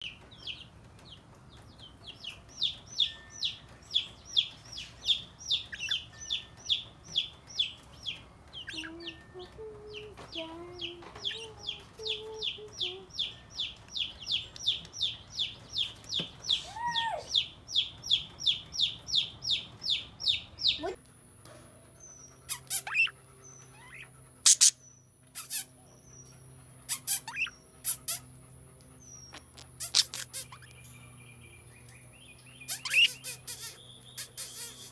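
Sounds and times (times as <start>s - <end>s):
parrot chirping: 2.1s - 9.2s, 10.8s - 21.0s, 22.0s - 28.3s, 29.0s - 30.8s, 32.5s - 34.9s.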